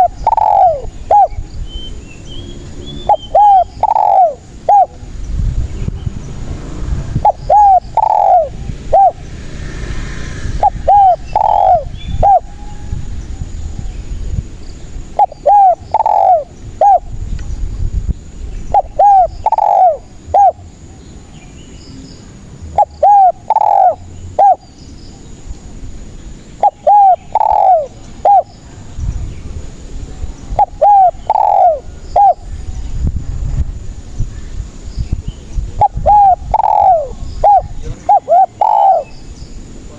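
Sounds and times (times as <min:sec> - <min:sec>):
dove cooing: 0:00.0 - 0:01.5, 0:02.9 - 0:05.1, 0:07.2 - 0:09.3, 0:10.6 - 0:12.9, 0:15.0 - 0:17.1, 0:18.7 - 0:20.9, 0:22.7 - 0:24.7, 0:26.6 - 0:28.6, 0:30.5 - 0:32.5, 0:35.7 - 0:39.2.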